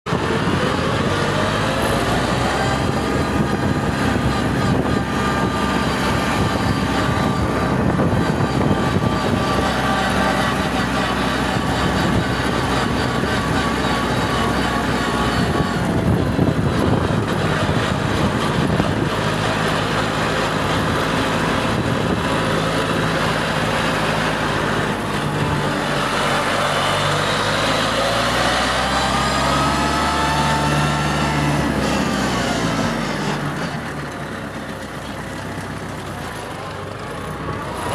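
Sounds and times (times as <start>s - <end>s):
tractor engine running: 0.1s - 37.9s.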